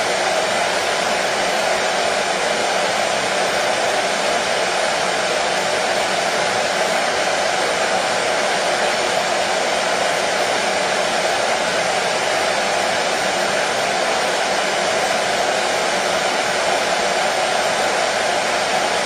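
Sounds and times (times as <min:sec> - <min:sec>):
hair dryer blowing: 0:00.0 - 0:19.0.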